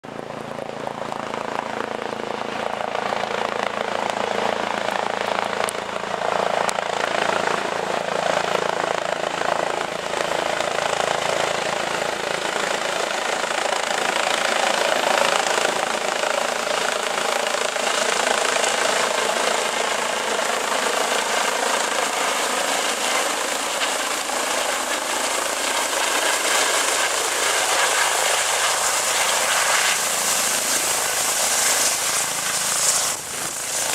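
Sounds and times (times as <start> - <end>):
helicopter rotor and turbine: 0.0 - 33.9.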